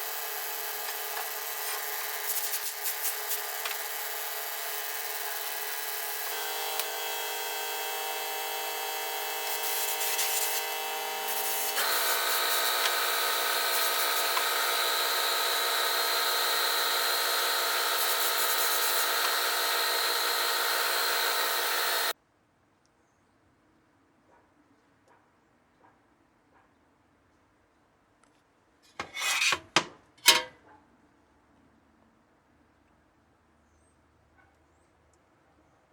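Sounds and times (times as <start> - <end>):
electric power tool abrading: 0.0 - 22.2.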